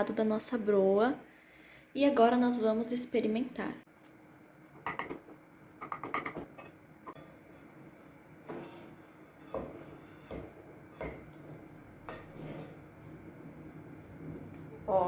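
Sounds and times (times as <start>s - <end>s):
cutlery and dishes clinking: 5.8s - 12.8s.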